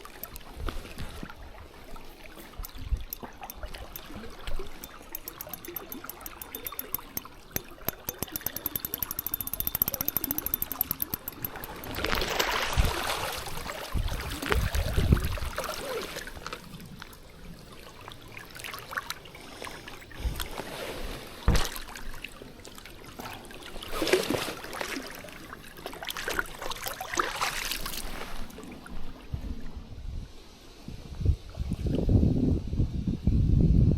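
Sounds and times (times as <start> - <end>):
rapid even ticking: 0.0 - 0.6, 2.5 - 12.9.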